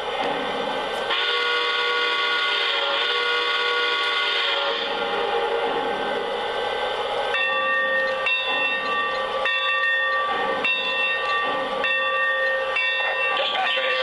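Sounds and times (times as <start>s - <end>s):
chord of steady tones: 1.1s - 14.0s.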